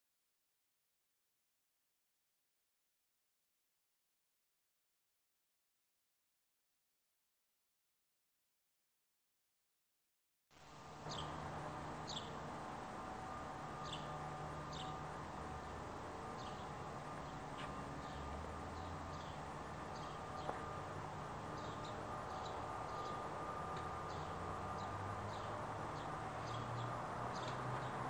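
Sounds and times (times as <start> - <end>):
low outdoor background hum: 10.5 - 28.0
birds chirping downward calls: 11.0 - 28.0.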